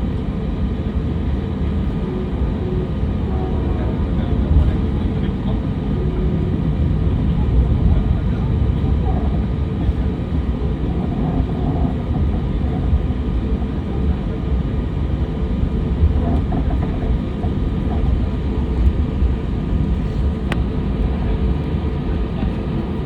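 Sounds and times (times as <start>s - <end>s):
airliner cabin rumble: 0.0s - 23.0s
faint murmuring voices: 1.6s - 23.0s.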